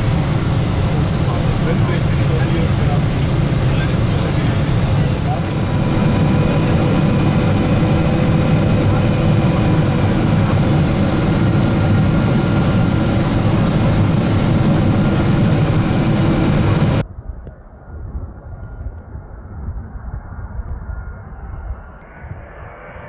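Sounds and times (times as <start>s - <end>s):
airplane cabin engine rush: 0.0s - 17.0s
muffled outdoor sound: 0.0s - 23.0s.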